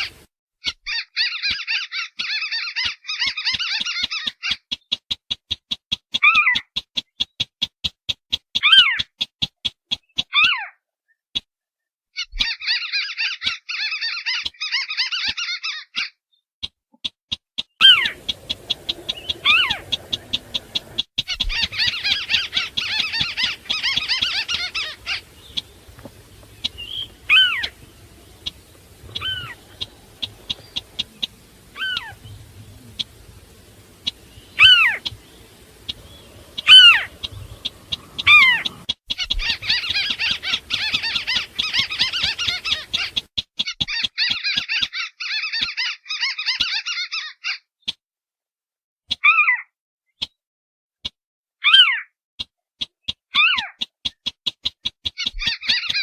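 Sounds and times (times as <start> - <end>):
recorded bird calls: 0.0 - 7.6, 8.3 - 11.2, 17.6 - 47.7, 52.8 - 56.0
fast chattering: 17.8 - 44.1.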